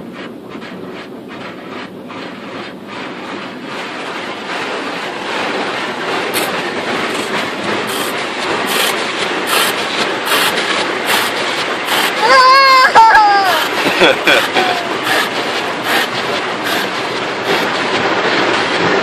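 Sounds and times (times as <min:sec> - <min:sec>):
water spray and scrubbing: 0:00.0 - 0:19.0
repeating hiss: 0:05.4 - 0:12.3, 0:13.5 - 0:18.2.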